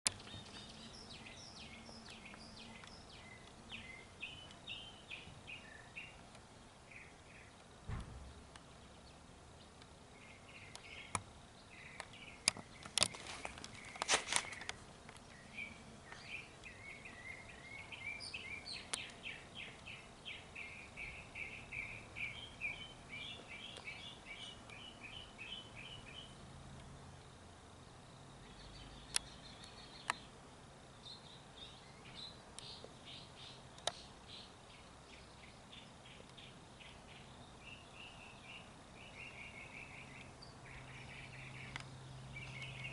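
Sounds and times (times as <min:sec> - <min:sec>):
outdoor background noise: 0:00.0 - 0:42.9
small bird chirping: 0:00.1 - 0:42.9
sharp clicks: 0:10.6 - 0:11.3, 0:11.9 - 0:15.4, 0:18.8 - 0:20.0, 0:33.7 - 0:34.1, 0:41.7 - 0:41.9.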